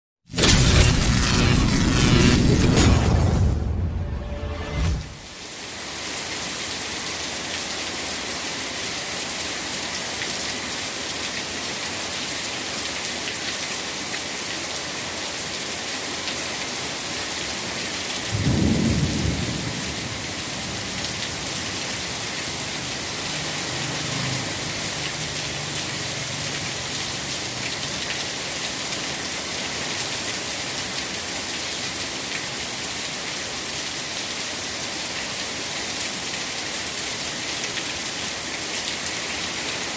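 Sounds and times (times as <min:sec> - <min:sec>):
thunder rumbling: 0:00.4 - 0:05.2, 0:18.4 - 0:22.3
steady rain: 0:05.2 - 0:39.9.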